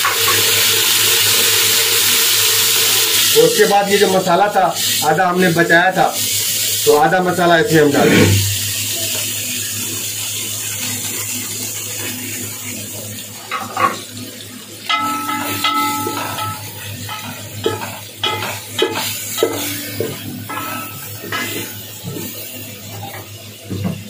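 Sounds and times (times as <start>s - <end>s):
chicken sizzling in hot oil: 0.0s - 24.0s
spoon scraping and knocking pot: 14.9s - 21.7s.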